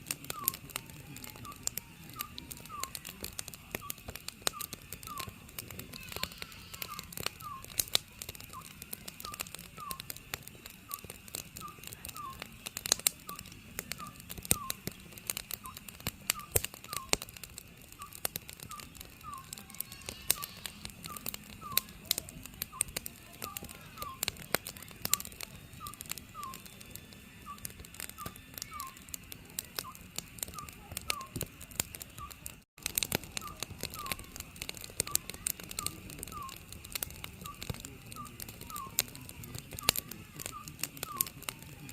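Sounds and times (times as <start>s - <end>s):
wood fire crackling: 0.0s - 41.9s
owl calling paired notes: 0.2s - 10.1s, 10.9s - 12.5s, 13.2s - 14.8s, 15.6s - 17.2s, 18.0s - 22.0s, 22.7s - 24.4s, 25.1s - 26.8s, 27.4s - 29.1s, 29.7s - 31.4s, 33.3s - 36.6s, 37.4s - 41.4s.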